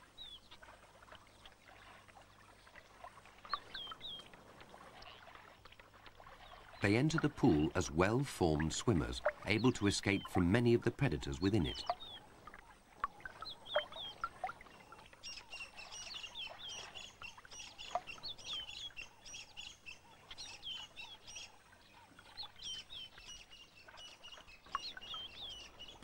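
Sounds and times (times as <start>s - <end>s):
birds chirping: 3.4s - 4.3s, 6.3s - 26.0s.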